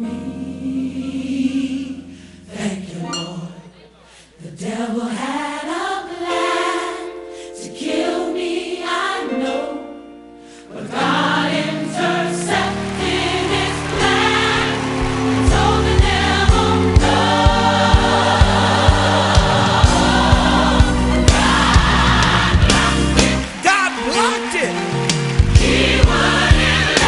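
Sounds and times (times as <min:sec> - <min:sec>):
gospel choir singing: 0:00.0 - 0:23.7, 0:24.4 - 0:27.0
bass: 0:12.6 - 0:23.6, 0:24.9 - 0:27.0
steady drum beat: 0:14.1 - 0:24.0, 0:25.1 - 0:27.0.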